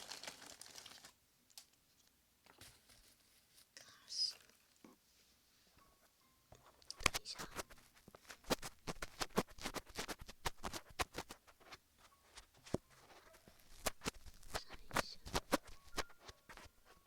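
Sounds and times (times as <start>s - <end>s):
fingers rubbing microphone crackling: 7.0s - 11.8s, 12.4s - 16.7s.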